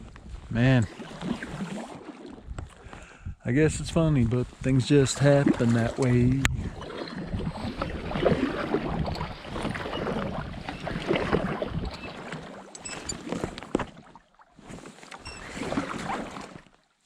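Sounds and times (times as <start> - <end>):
paddle splashing in water: 0.8 - 2.8, 5.0 - 17.0.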